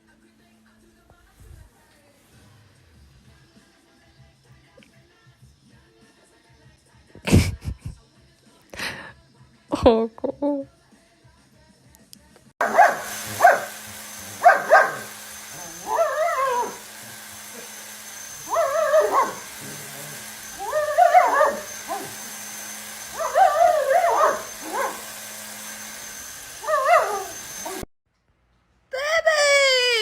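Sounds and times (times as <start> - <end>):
dog yelping and howling: 12.6 - 27.9.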